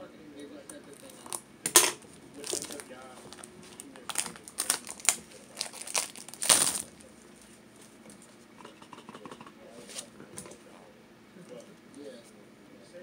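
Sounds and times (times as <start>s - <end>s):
plastic wrapping crinkling and tearing: 0.9s - 1.4s, 2.1s - 8.0s.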